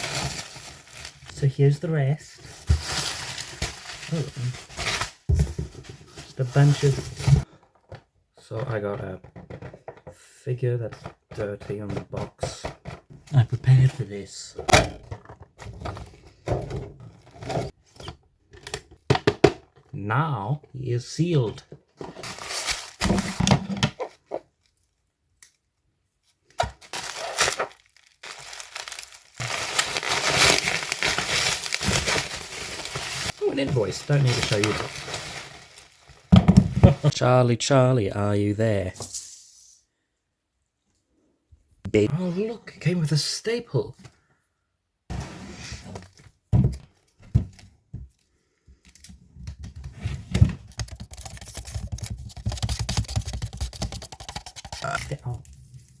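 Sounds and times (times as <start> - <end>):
packaging tearing and crinkling: 0.0 - 1.3, 2.6 - 5.2, 26.8 - 36.3.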